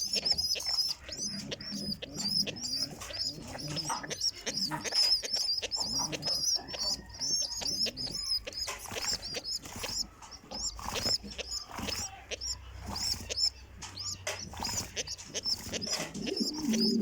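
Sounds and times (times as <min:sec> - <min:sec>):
birds chirping rapidly: 0:00.0 - 0:17.0.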